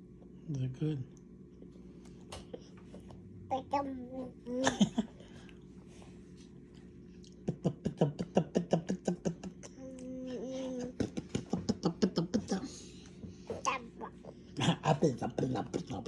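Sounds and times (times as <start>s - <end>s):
toddler making mouth sounds: 3.5s - 4.7s, 13.5s - 14.5s
toddler humming: 9.8s - 10.9s.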